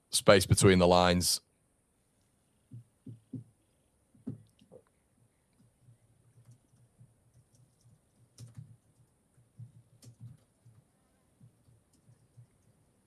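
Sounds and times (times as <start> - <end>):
typing on a keyboard: 5.5 - 13.0.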